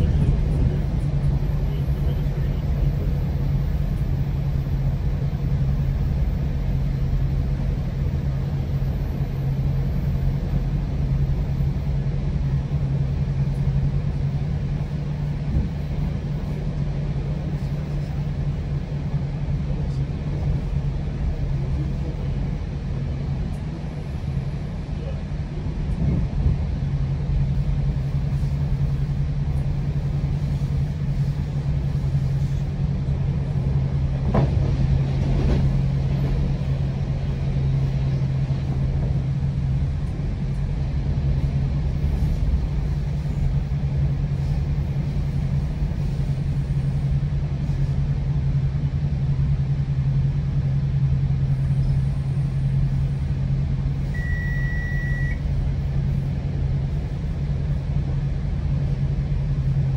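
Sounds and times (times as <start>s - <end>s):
train interior rumble: 0.0s - 59.9s.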